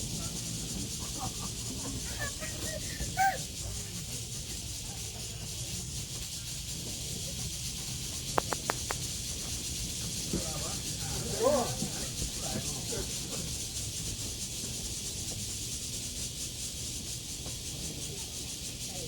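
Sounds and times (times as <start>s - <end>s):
faint distant voices: 0.0s - 16.2s
quick clicks: 8.4s - 9.1s.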